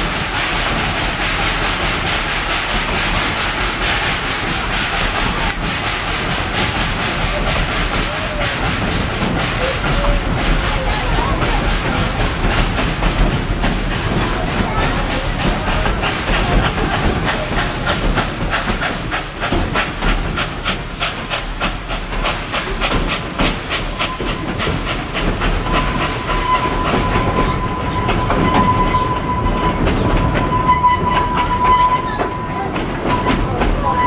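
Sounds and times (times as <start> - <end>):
steam hiss: 0.0 - 34.0
train wheels clattering on track: 0.0 - 34.0
steady high squeal: 23.7 - 34.0.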